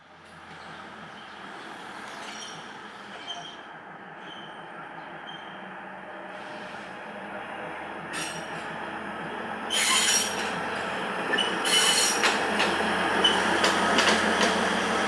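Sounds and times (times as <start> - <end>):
train rumbling on rails: 0.0 - 15.0
high-pitched wheel squeals: 9.7 - 10.4, 11.4 - 12.3.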